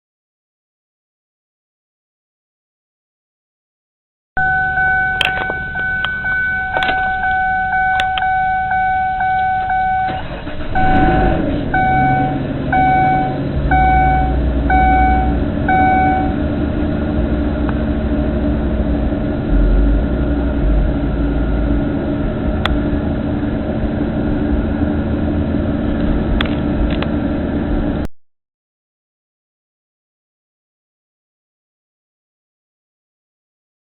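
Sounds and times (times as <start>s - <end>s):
dashboard warning chime: 4.4s - 16.4s
car engine starting and idling: 4.4s - 28.1s.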